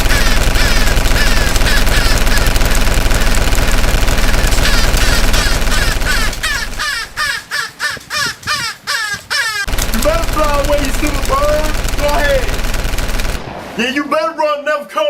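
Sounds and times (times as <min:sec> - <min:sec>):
crow-like cawing: 0:00.0 - 0:02.6, 0:04.4 - 0:09.7
video game machine-gun fire: 0:00.0 - 0:07.2, 0:09.7 - 0:13.7.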